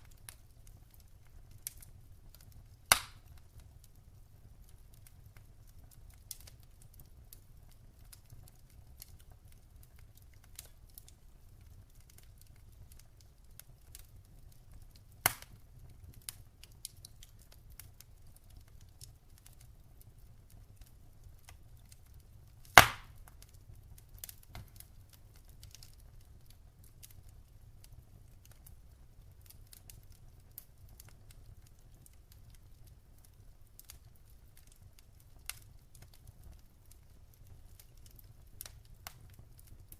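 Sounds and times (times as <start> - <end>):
wood fire crackling: 0.0 - 39.9
loud fire pops: 1.5 - 3.4, 15.1 - 15.6, 22.6 - 23.4.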